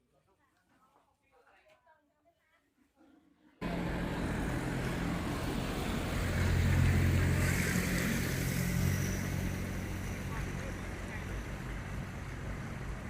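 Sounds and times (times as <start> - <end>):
loud rushing noise: 3.6 - 13.0
motor engine running: 3.6 - 13.0.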